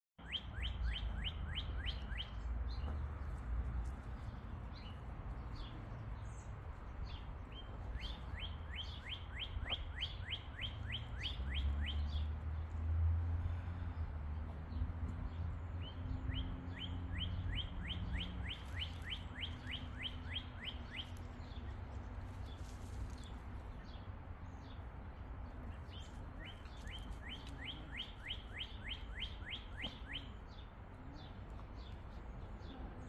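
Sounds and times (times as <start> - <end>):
bird singing whistled notes: 0.2 - 2.4, 8.0 - 12.3, 16.2 - 21.2, 26.4 - 30.3.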